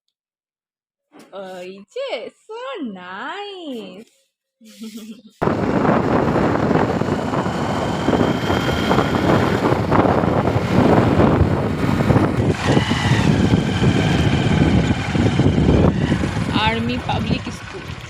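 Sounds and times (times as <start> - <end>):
wind rushing on microphone: 5.4 - 17.8
motorcycle engine: 5.4 - 18.0
road noise: 5.4 - 18.0.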